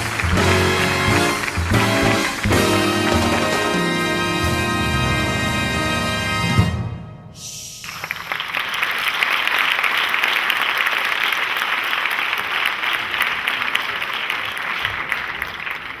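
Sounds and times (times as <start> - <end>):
audience applauding: 0.0 - 4.3, 7.8 - 16.0.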